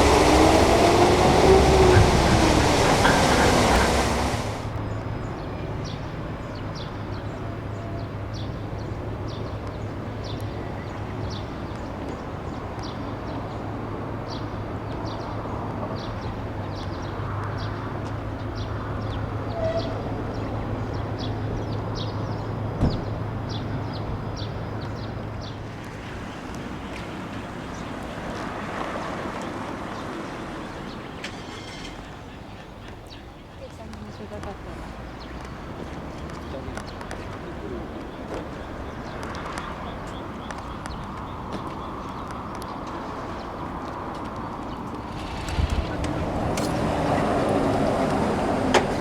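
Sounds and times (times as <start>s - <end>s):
vehicle passing: 0.0s - 4.8s, 20.1s - 31.2s, 33.8s - 49.0s
low engine hum: 0.0s - 31.3s, 33.7s - 49.0s.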